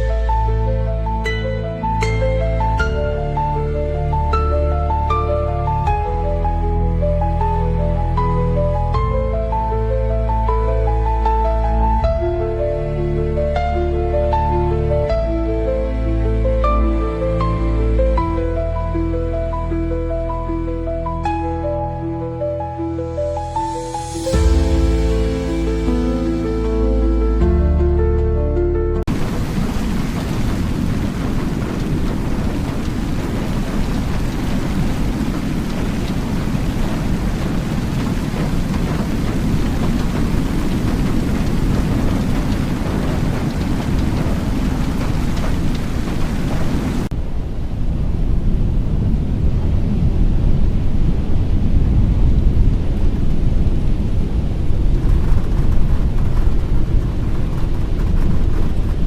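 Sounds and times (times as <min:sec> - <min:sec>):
deep steady rumble: 0:00.0 - 0:59.0
wind rushing: 0:22.4 - 0:59.0
rain rushing: 0:23.3 - 0:59.0.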